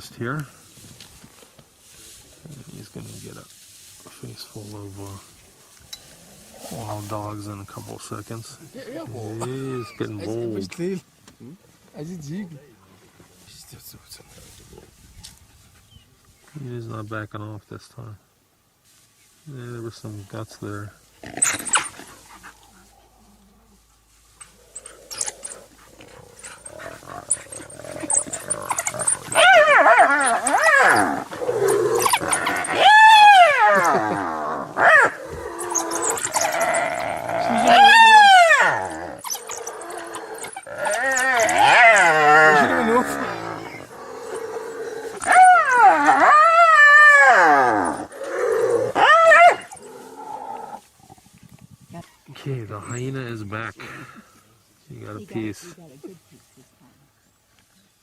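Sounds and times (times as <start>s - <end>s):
wild dogs squealing calls: 21.2s - 23.8s, 24.4s - 51.4s.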